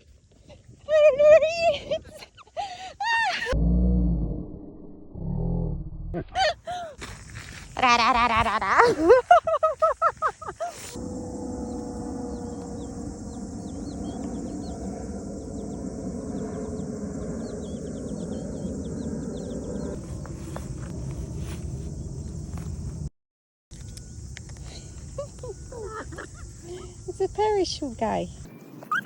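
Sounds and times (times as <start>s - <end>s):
low rumbling noise: 3.5s - 6.4s, 10.8s - 23.1s
high insect drone: 6.4s - 23.1s, 23.7s - 29.0s
faint bird chirps: 11.0s - 20.0s.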